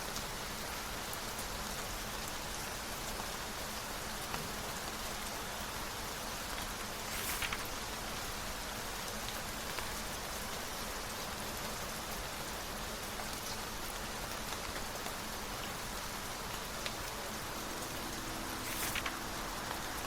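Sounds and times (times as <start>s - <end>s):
steady rain: 0.0s - 20.0s
brief rustle: 7.0s - 7.8s, 17.8s - 20.0s.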